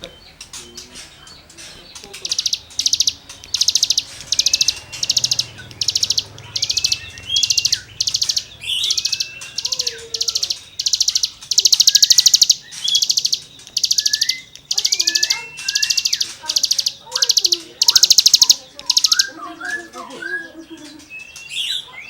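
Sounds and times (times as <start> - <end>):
songbird buzzy trills: 0.0 - 22.0
bird rising whistles: 2.3 - 19.9.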